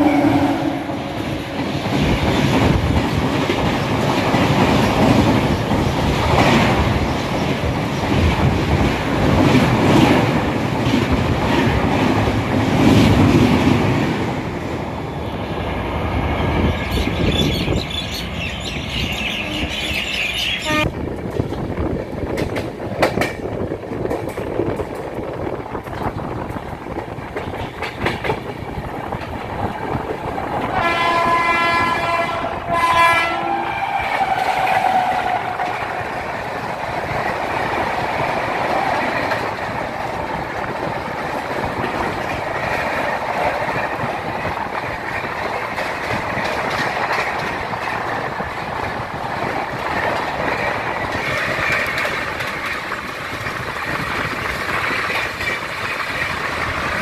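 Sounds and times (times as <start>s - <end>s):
train horn: 0.0s - 1.2s, 20.6s - 21.0s, 30.7s - 35.8s
train wheels clattering over joints: 21.2s - 32.3s, 34.1s - 57.0s.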